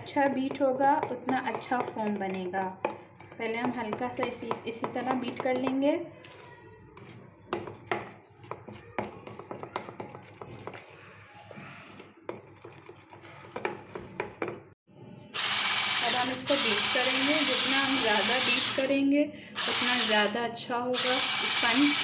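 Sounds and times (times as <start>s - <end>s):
utensil tapping against bowl: 0.0s - 5.8s
electric beater whirring: 15.4s - 18.9s, 19.6s - 20.3s, 21.0s - 22.0s.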